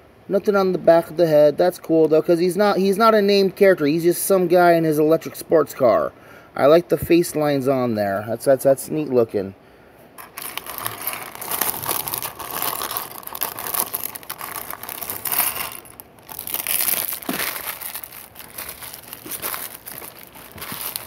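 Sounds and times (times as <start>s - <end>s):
plastic bags crinkling: 10.2s - 21.0s.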